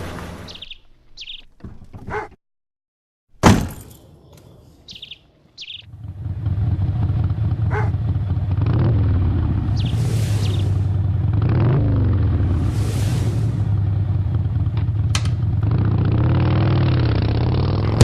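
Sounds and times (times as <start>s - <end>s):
bird chirps: 0.5s - 1.5s, 4.0s - 5.9s, 9.6s - 11.0s
steady low rumble: 7.3s - 16.4s.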